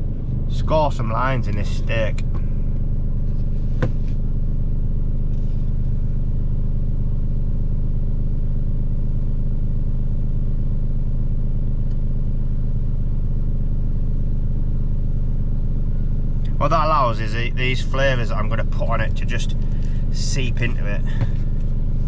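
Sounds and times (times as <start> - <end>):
truck engine idling: 0.0 - 7.3, 12.3 - 22.0.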